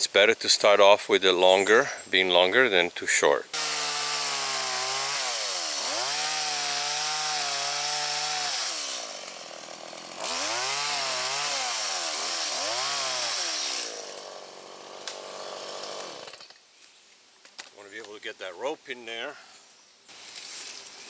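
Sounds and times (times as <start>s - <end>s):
chainsaw cutting log: 3.5s - 16.6s.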